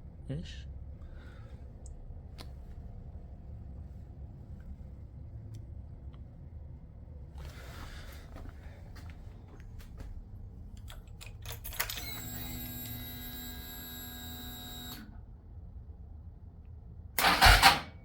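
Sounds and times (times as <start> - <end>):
fuel pump electric whine: 11.7 - 15.2, 17.2 - 18.0.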